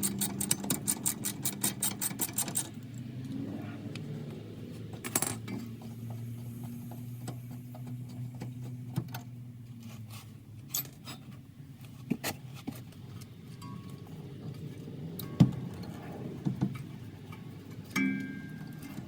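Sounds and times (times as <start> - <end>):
hand tools clicking on metal: 0.0 - 3.4
steady low hum: 0.0 - 19.0.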